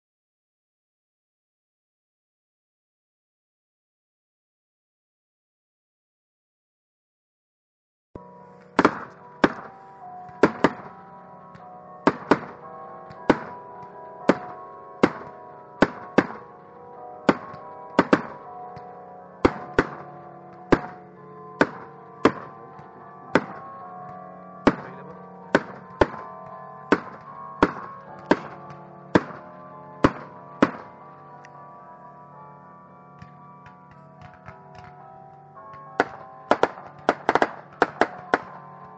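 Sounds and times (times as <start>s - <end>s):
slow music with held notes: 8.2s - 38.9s
fireworks sharp reports: 8.8s - 16.6s, 17.2s - 31.0s, 35.6s - 38.8s.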